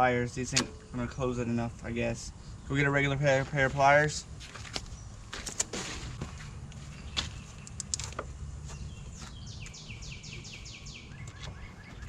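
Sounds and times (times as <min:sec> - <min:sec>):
bird chirping: 0:06.2 - 0:12.0.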